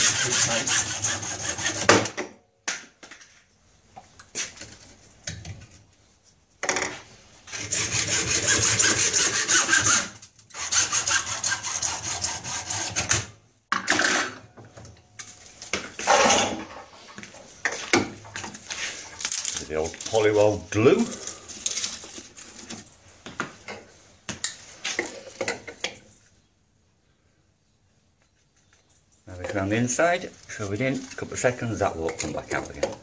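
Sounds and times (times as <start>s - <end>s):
hand saw cutting plastic pipe: 0.0s - 2.2s, 7.5s - 13.4s.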